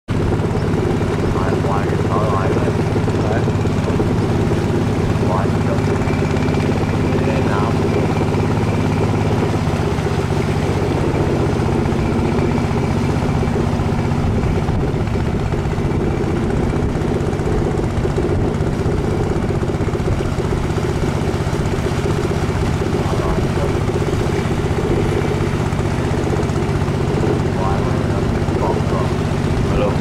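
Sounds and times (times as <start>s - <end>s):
boat engine droning: 0.1s - 30.0s
wind: 0.1s - 30.0s
water hissing: 17.1s - 30.0s.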